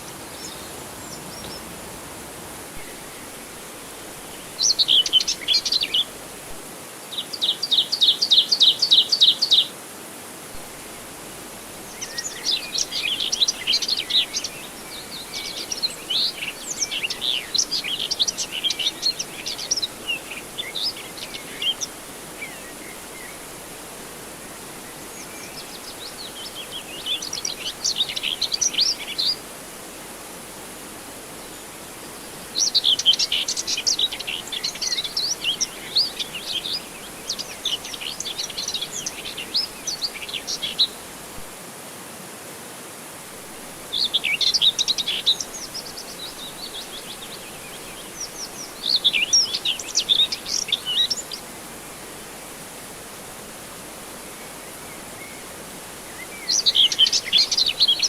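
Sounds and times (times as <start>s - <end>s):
steady background hiss: 0.0s - 58.0s
songbirds chirping and singing: 25.0s - 29.4s, 32.2s - 41.0s, 56.1s - 58.0s.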